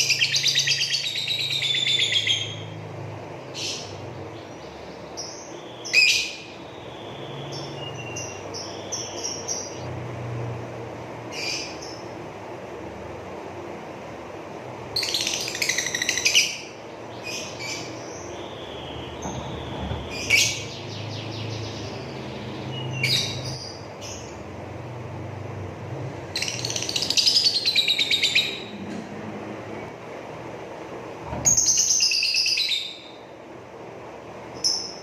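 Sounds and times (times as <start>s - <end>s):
lovebird chattering trills: 15.0s - 19.6s, 26.4s - 28.7s.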